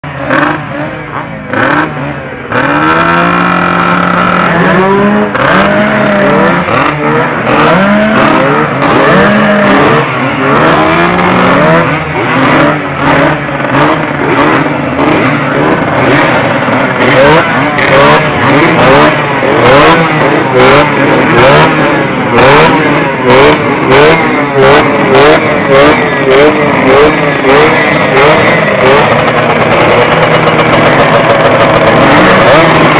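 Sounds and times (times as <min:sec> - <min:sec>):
engine crackles: 0:00.0 - 0:32.9
motorcycle engines revving: 0:00.0 - 0:32.9.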